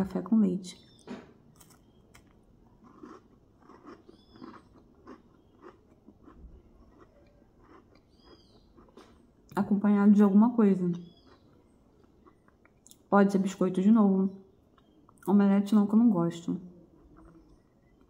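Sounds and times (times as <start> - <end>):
soft chewing: 0.9 - 9.6, 10.9 - 13.1, 14.5 - 15.3, 16.7 - 18.0.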